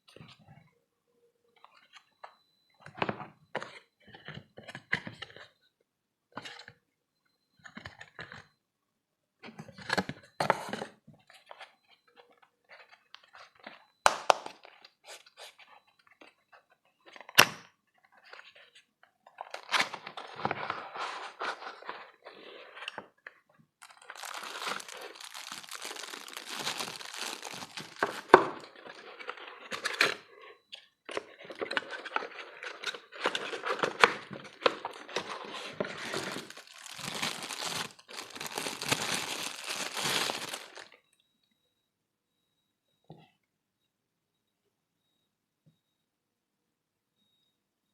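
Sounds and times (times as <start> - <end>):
packaging tearing and crinkling: 23.8 - 29.0, 33.2 - 40.9.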